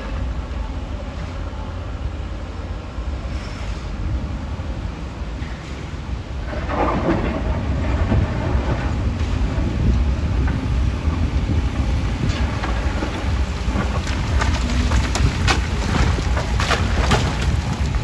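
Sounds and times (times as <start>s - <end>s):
rock-crushing machinery rumbling: 2.9s - 18.0s
loud crunch: 11.9s - 18.0s.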